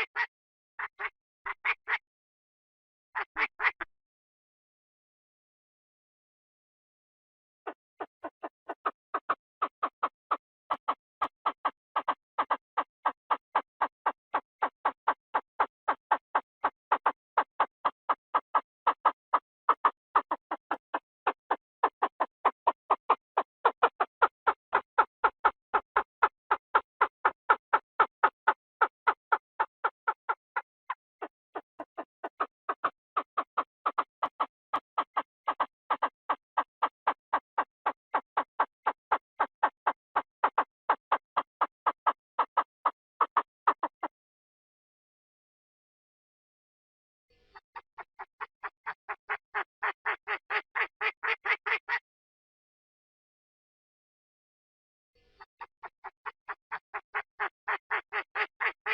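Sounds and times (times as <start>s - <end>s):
quail calling: 0.0s - 2.0s, 3.2s - 3.9s, 7.7s - 37.4s, 38.1s - 44.1s, 47.4s - 52.0s, 55.2s - 58.9s.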